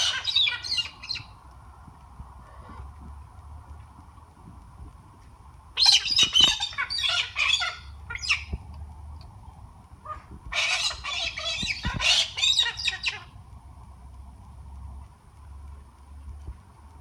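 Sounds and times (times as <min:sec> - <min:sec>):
parrots squawking: 0:00.0 - 0:01.3, 0:05.8 - 0:08.5, 0:10.1 - 0:13.3.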